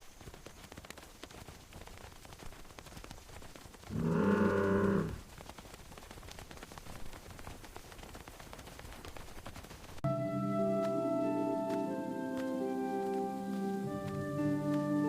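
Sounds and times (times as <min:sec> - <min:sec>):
cow mooing: 0:03.9 - 0:05.2.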